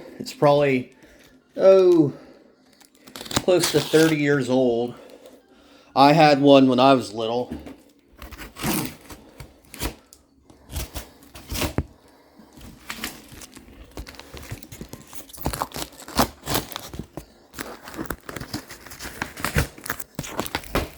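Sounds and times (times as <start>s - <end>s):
box packaging tearing: 2.8s - 4.3s, 8.2s - 11.9s, 12.6s - 20.9s.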